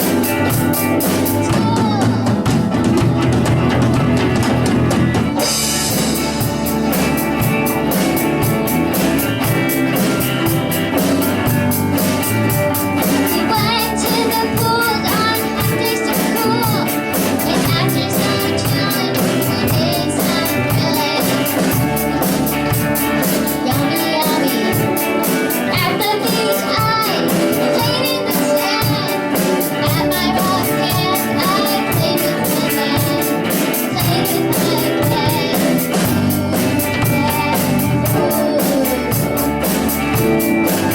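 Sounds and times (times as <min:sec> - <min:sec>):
young person singing: 0:00.0 - 0:03.5, 0:13.0 - 0:40.9
rock band playing: 0:00.0 - 0:40.9.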